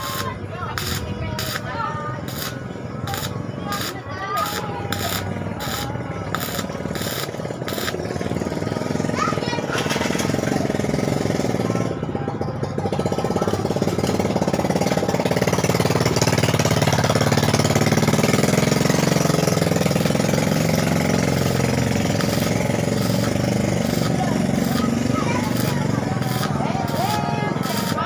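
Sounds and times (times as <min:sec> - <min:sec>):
machine motor rattling: 0:00.0 - 0:08.7, 0:18.7 - 0:28.0.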